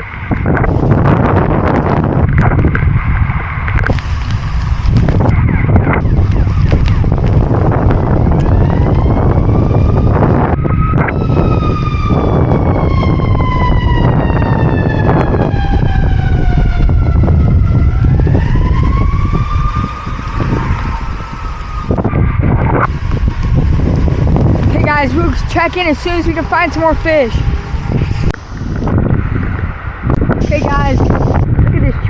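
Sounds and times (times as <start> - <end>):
strong wind buffeting microphone: 0.0 - 32.0
siren wailing: 3.9 - 24.7, 26.4 - 29.2.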